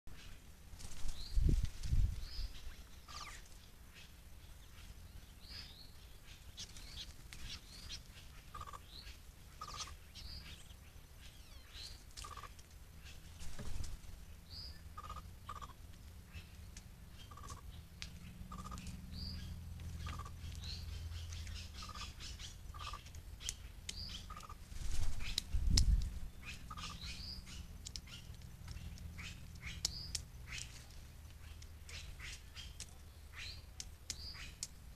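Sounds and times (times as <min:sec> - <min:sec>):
birds calling in short notes: 0:17.2 - 0:34.7
ticks and clicks: 0:27.8 - 0:30.7.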